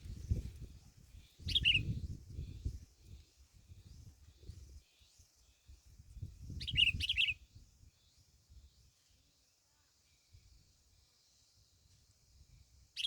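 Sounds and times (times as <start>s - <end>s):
small bird chirping: 0.0s - 9.2s.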